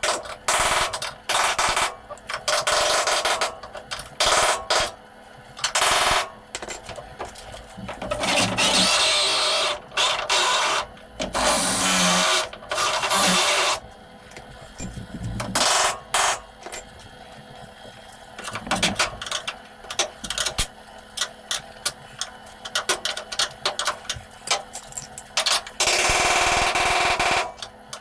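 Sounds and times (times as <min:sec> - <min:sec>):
power drill boring into metal: 0:08.2 - 0:10.8, 0:11.4 - 0:13.8.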